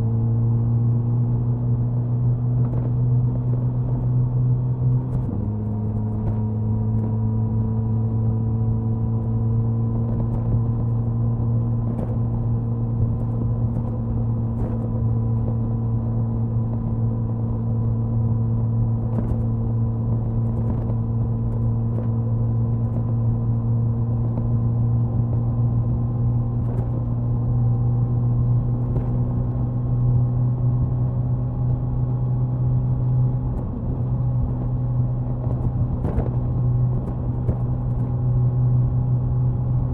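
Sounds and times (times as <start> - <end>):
motorcycle exhaust cruising: 0.0 - 39.9
wind noise: 10.0 - 39.9.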